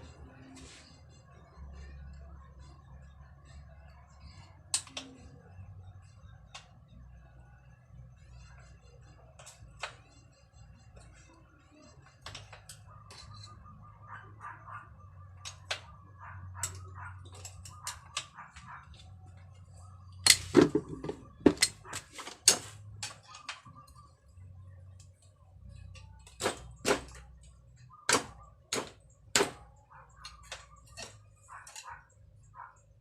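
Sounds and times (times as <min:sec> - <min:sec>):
low steady hum: 0:00.0 - 0:33.0
tools knocking on bicycle parts: 0:20.2 - 0:23.2.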